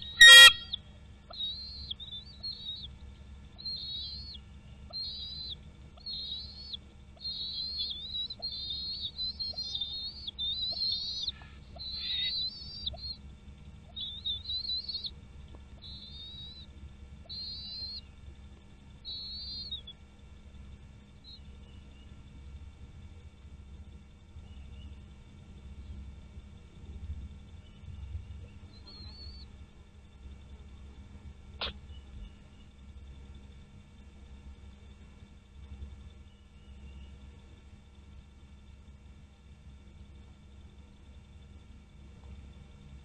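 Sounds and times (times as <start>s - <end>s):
bird whistling high thin notes: 0.0s - 0.8s.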